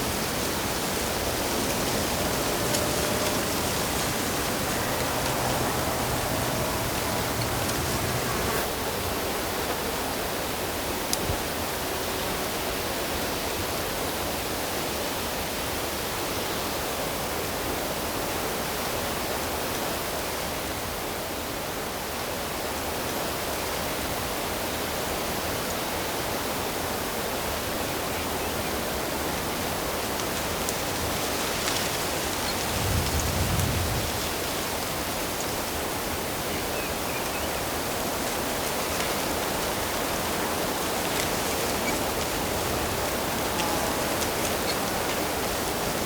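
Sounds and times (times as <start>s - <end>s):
running water rushing: 0.0s - 8.7s, 29.4s - 46.0s.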